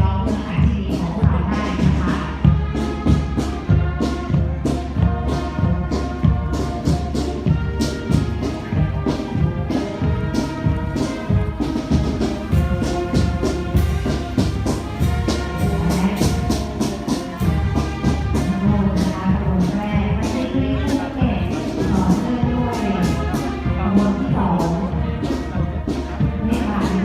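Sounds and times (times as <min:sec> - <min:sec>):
marching band brass: 0:00.0 - 0:27.0
steady drumbeat: 0:00.0 - 0:27.0.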